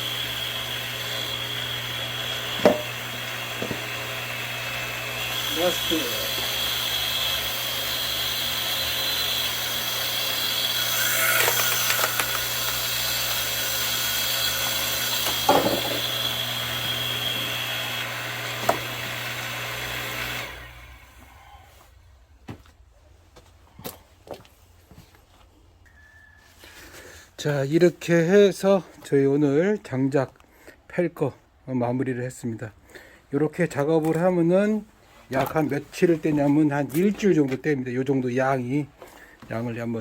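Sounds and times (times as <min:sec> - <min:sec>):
log splitter motor whining: 0:00.0 - 0:21.9.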